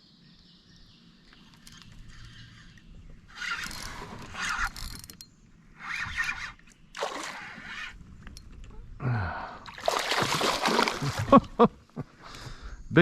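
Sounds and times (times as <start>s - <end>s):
fishing reel gears whirring: 1.5s - 8.5s.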